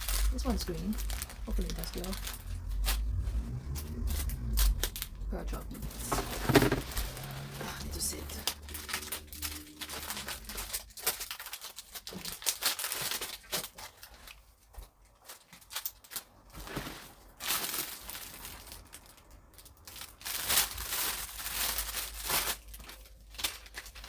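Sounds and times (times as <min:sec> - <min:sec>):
plastic packaging crinkling: 0:00.0 - 0:24.0.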